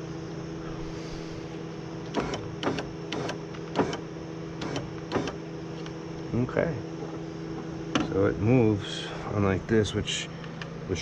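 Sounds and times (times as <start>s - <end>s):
power window motor humming: 2.1s - 5.4s.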